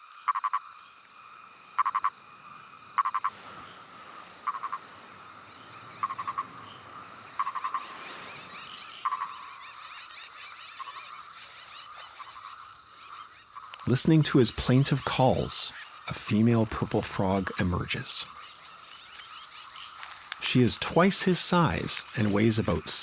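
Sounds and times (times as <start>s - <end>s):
frog clucking call: 0.2s - 0.8s, 1.8s - 2.2s, 2.9s - 3.4s, 4.4s - 4.9s, 5.9s - 6.6s, 7.3s - 8.0s, 8.8s - 13.9s.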